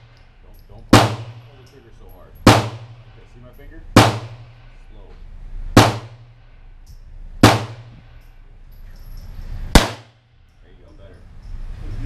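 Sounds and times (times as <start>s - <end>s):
pistol shots echoing indoors: 0.9s - 1.5s, 2.4s - 3.0s, 4.0s - 4.7s, 5.8s - 6.5s, 7.4s - 8.0s, 9.8s - 10.2s.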